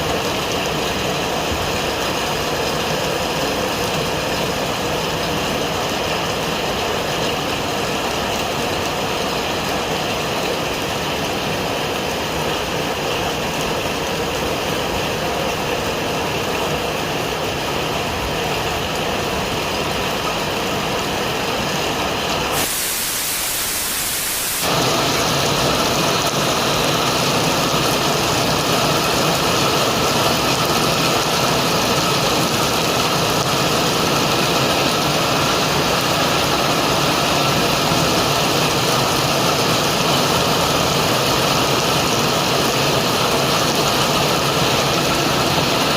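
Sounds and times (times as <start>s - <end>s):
wind and rain noise: 0.0s - 45.9s
plain hiss: 22.4s - 25.6s.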